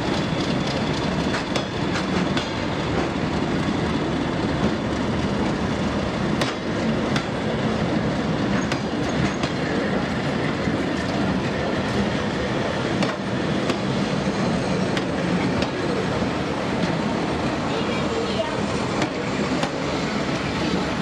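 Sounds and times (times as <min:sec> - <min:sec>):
wheels clicking over rails: 0:00.0 - 0:03.6
train engine and wheel rumble: 0:00.0 - 0:21.0.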